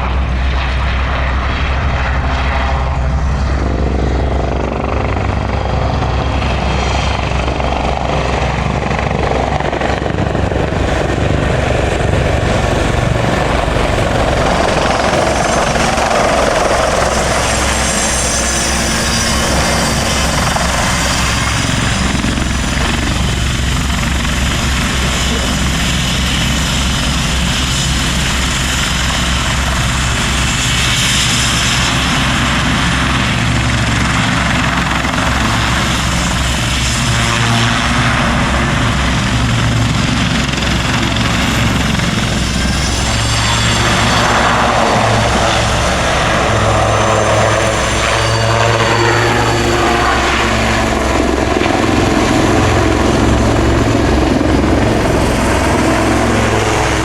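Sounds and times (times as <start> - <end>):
helicopter rotor and turbine: 0.0 - 57.0.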